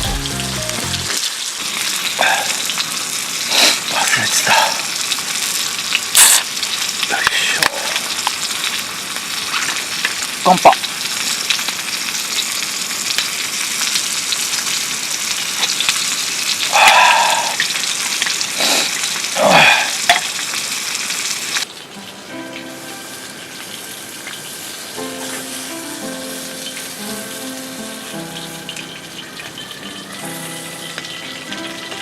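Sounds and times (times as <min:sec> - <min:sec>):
soft background music: 0:00.0 - 0:01.2, 0:21.9 - 0:32.0
food sizzling in pan: 0:00.0 - 0:32.0.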